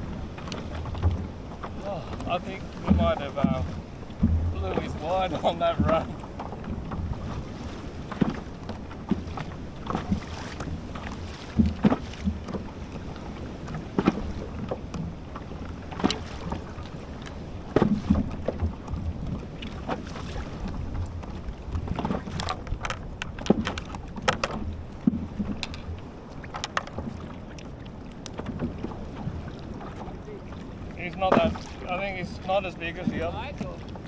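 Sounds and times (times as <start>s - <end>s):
low wind rumble: 0.0s - 34.0s
water slapping: 0.0s - 34.0s
knocks on kayak: 0.4s - 7.4s, 8.1s - 12.7s, 17.7s - 20.0s, 31.1s - 31.8s.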